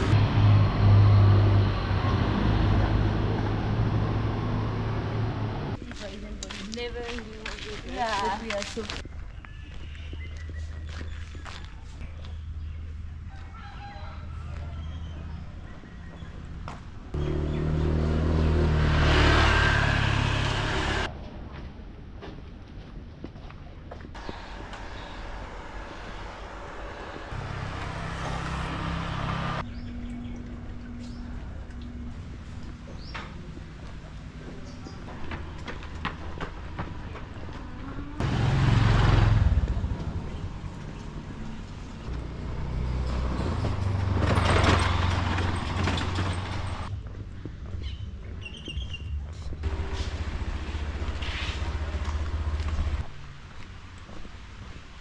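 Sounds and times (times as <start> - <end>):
street traffic: 0.0 - 55.0
vehicle engine running: 24.2 - 36.0, 37.0 - 46.9.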